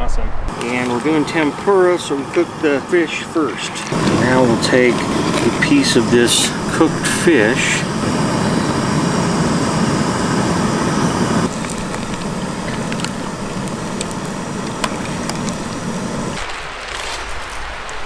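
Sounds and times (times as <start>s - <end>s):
fish sizzling in hot oil: 0.5s - 16.5s.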